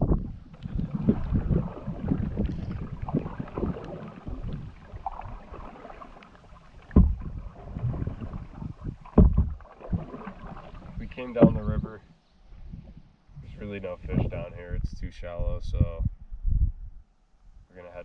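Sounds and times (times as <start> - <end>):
water splashing against hull: 0.0 - 11.9
canoe thump: 0.1 - 11.8
paddle strokes: 0.2 - 11.9.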